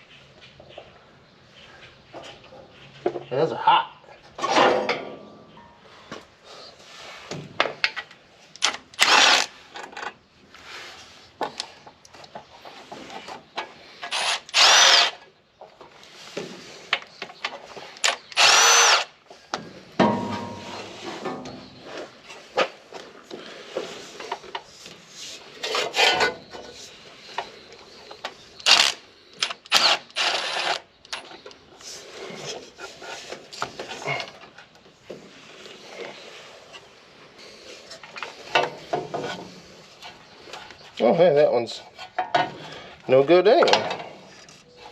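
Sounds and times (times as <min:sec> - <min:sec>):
power tool whining: 0:09.0 - 0:09.5, 0:14.1 - 0:15.2, 0:18.0 - 0:19.1, 0:28.6 - 0:31.3.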